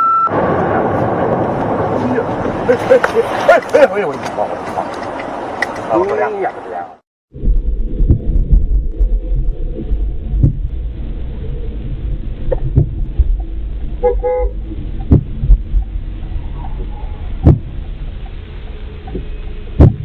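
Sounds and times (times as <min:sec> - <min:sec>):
car road and engine rumble: 0:00.0 - 0:20.0
dull thumps: 0:09.8 - 0:10.8, 0:12.5 - 0:13.6, 0:15.0 - 0:15.9, 0:17.3 - 0:17.9, 0:19.1 - 0:20.0
car horn toot: 0:14.0 - 0:14.6.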